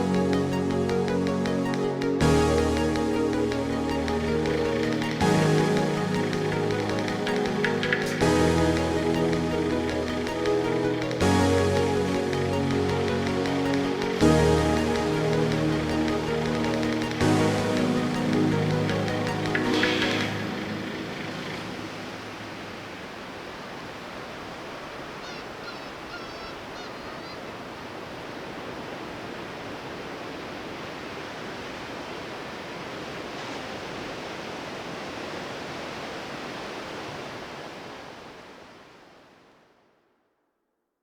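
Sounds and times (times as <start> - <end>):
sea surf washing in: 0.0 - 39.5
short high bird calls: 25.2 - 27.6.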